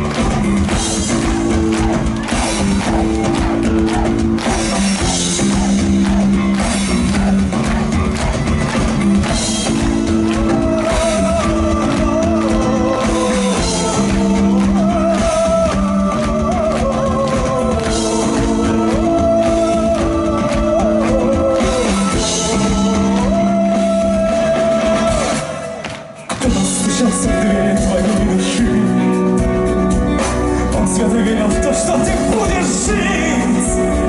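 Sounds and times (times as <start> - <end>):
rock band playing live: 0.0 - 34.0.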